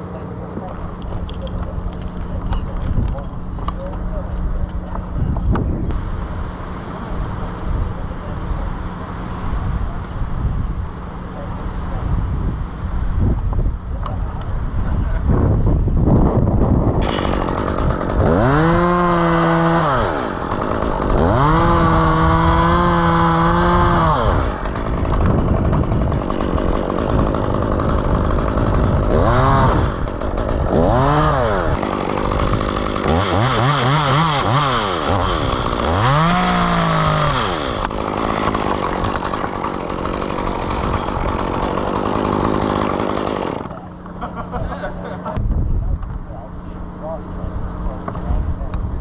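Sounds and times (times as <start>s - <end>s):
chainsaw revving: 17.0s - 45.4s.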